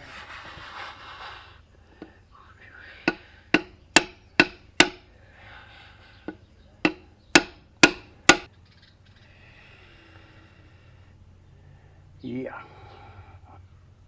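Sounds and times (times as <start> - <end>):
hammer striking metal pipe: 3.0 - 5.1, 6.3 - 8.5.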